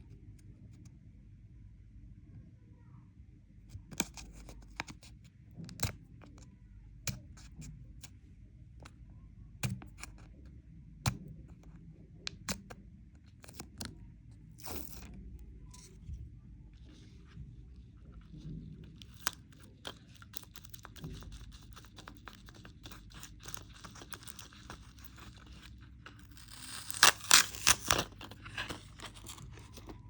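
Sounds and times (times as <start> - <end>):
candy wrapper crinkling: 14.6 - 15.2, 18.9 - 30.0
wrapper tearing: 19.1 - 30.0.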